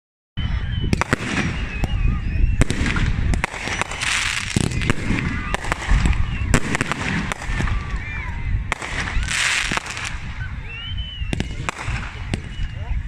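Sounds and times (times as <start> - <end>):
fireworks cracks and bangs: 0.9 - 2.0, 2.6 - 10.4, 11.3 - 12.7
fireworks crackling: 0.9 - 10.5, 11.3 - 12.9.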